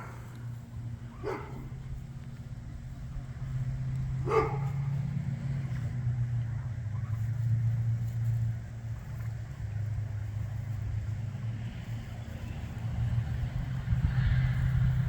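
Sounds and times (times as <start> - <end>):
dog barking: 0.0 - 0.3, 1.1 - 1.8, 4.2 - 4.9
tractor engine running: 0.0 - 15.0.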